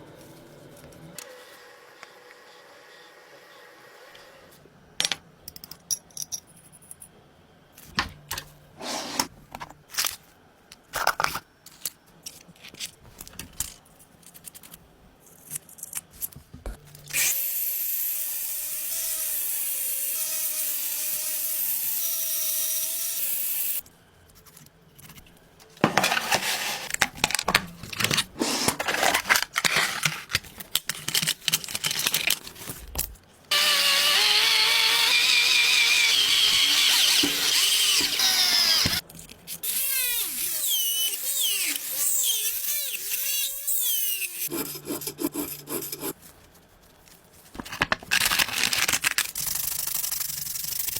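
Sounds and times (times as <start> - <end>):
power tool running with whine: 33.5 - 39.0.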